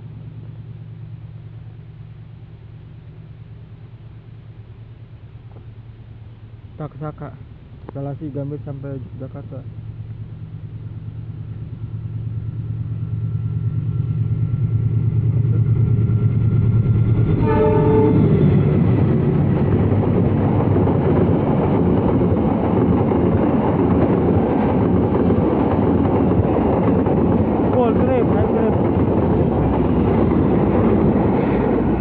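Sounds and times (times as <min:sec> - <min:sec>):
locomotive engine hum: 0:00.0 - 0:32.0
train wheels rumbling: 0:00.0 - 0:32.0
train horn blast: 0:17.3 - 0:18.7.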